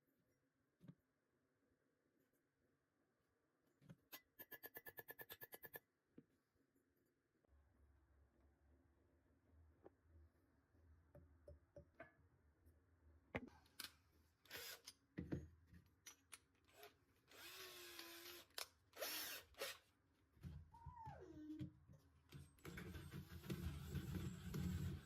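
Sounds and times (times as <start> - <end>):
power drill running: 14.5 - 14.8, 17.3 - 19.8.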